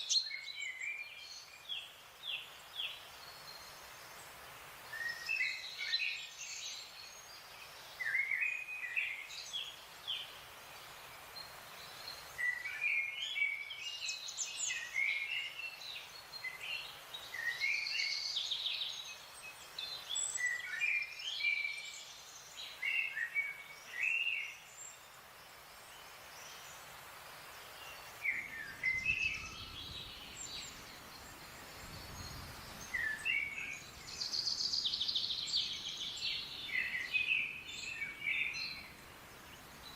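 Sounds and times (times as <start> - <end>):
songbirds chirping and whistling: 0.0 - 39.9
steady background hiss: 0.0 - 39.9.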